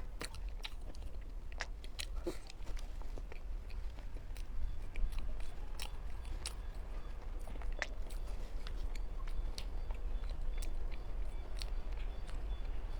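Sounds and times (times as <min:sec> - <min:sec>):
chewing and crunching: 0:00.0 - 0:12.9.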